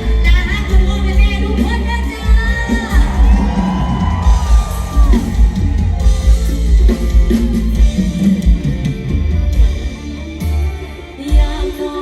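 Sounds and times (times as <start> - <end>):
bass guitar: 0.0 - 12.0
drums: 0.0 - 12.0
guitar: 0.0 - 12.0.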